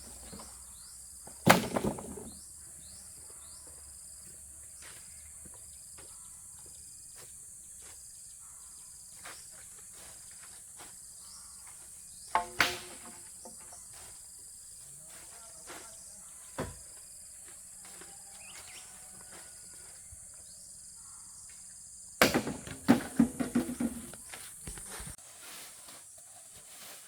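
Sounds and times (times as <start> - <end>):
sharp knocks: 22.2 - 24.1.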